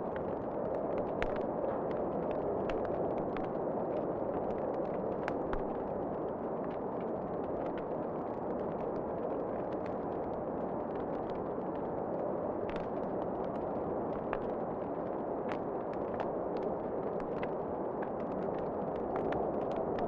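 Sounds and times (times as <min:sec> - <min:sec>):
fire pops and snaps: 0:00.1 - 0:05.8, 0:12.6 - 0:20.0.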